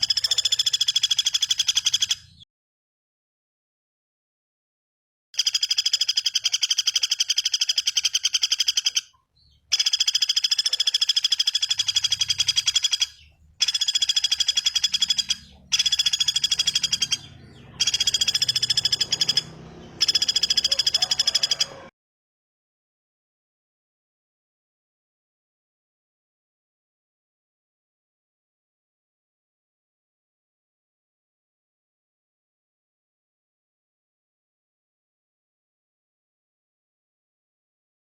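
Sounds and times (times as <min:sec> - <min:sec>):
bird trilling: 0:00.0 - 0:02.4, 0:05.4 - 0:21.9.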